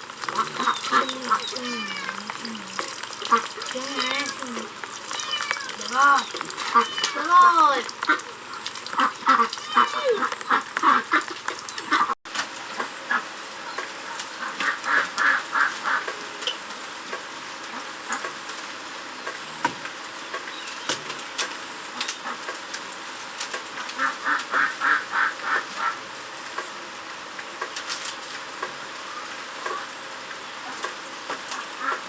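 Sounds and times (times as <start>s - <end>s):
poultry rapid calls: 0.2s - 12.1s.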